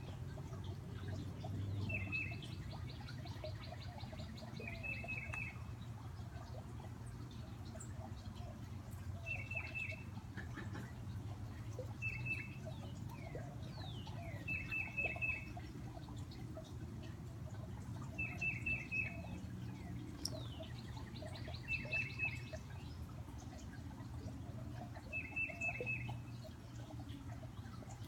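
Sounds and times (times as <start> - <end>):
fountain splashing: 0.0 - 28.0
bird whistled song phrases: 14.2 - 15.5, 18.2 - 19.3, 25.1 - 26.2.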